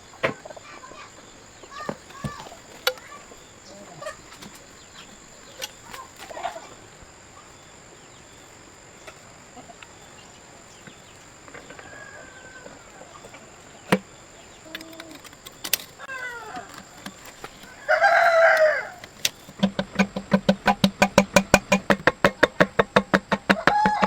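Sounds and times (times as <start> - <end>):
faint animal calls: 0.4 - 15.4, 16.0 - 19.6
sharp knocks: 1.8 - 3.2, 19.1 - 24.0.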